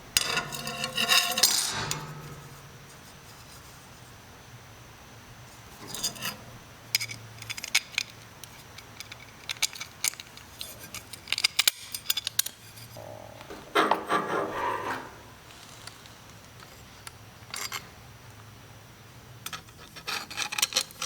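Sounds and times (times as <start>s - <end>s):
metal tools clinking and scraping: 0.2s - 2.7s, 5.7s - 13.0s, 17.5s - 17.9s
faint low hum: 12.3s - 20.0s.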